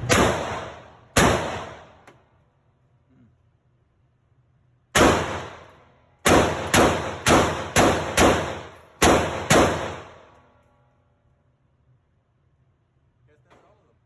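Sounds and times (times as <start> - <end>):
gunshots with echoing tail: 0.0 - 2.0, 5.0 - 10.3.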